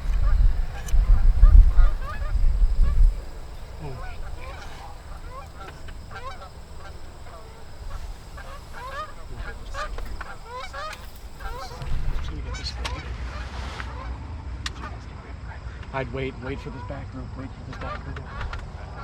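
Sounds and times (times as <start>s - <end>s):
geese honking: 0.0s - 12.3s.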